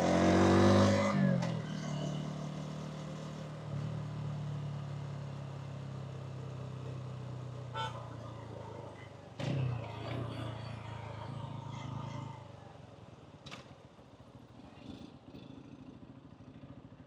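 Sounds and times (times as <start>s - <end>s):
motorcycle engine idling: 11.5s - 17.0s.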